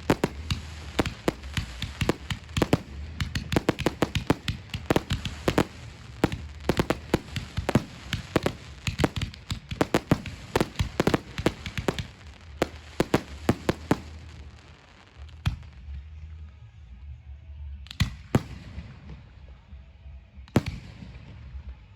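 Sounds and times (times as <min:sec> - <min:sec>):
fireworks banging: 0:00.0 - 0:15.7.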